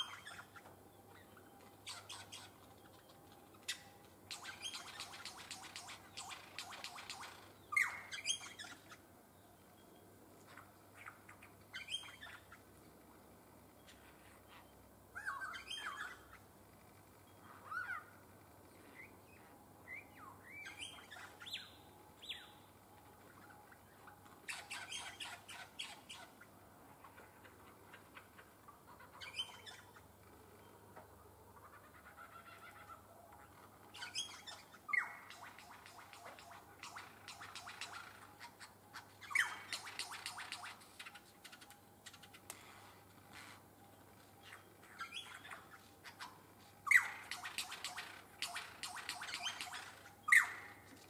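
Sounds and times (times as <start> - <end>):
birds chirping and whistling: 0.0 - 9.0, 10.5 - 12.6, 15.2 - 16.4, 18.8 - 22.7, 23.3 - 26.5, 29.0 - 30.0, 32.0 - 51.0
birds chattering rapidly: 0.0 - 9.2, 23.3 - 30.8, 31.5 - 51.0.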